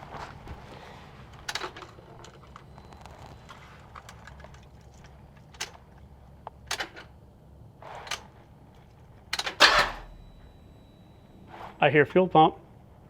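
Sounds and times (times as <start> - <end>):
footsteps around a car: 0.0 - 5.4
faint low hum: 0.0 - 13.0
loud clatter: 9.4 - 10.2.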